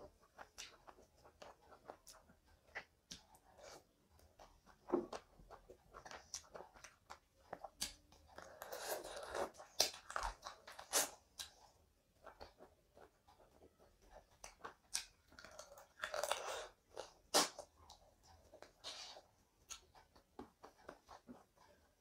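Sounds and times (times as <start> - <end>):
person chewing food: 0.0 - 22.0
wet mouth clicks: 14.5 - 17.7.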